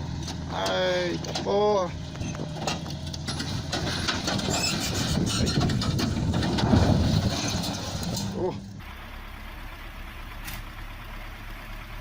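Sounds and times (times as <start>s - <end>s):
heavy vehicle engine under load: 0.0s - 12.0s
rattling and knocking: 2.1s - 8.4s.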